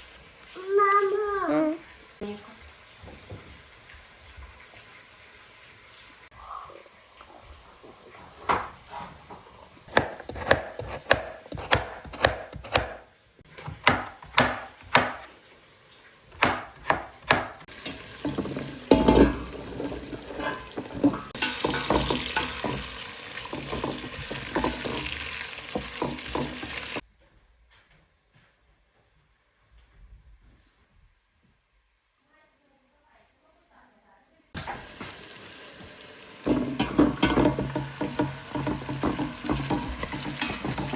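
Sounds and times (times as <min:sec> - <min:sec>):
knife chopping on cutting board: 0:09.9 - 0:13.0, 0:13.6 - 0:15.3, 0:16.4 - 0:17.6.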